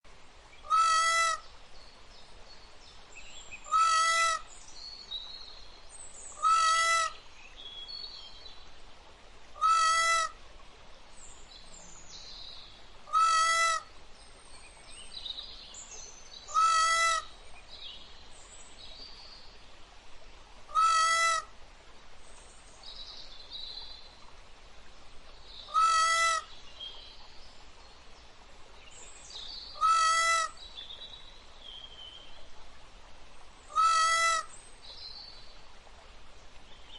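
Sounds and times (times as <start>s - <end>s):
peafowl calling: 0.6s - 1.4s, 3.7s - 4.5s, 6.4s - 7.2s, 9.6s - 10.4s, 13.1s - 13.9s, 16.5s - 17.3s, 20.7s - 21.5s, 25.7s - 26.5s, 29.8s - 30.6s, 33.7s - 34.5s.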